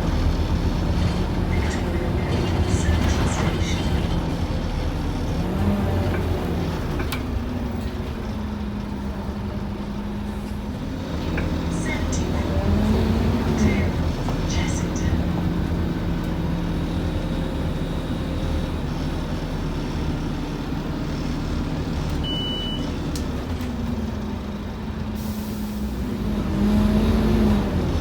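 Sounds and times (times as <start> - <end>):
bus diesel engine humming: 0.0 - 28.0
road noise: 0.0 - 28.0
short high beep: 22.2 - 22.9.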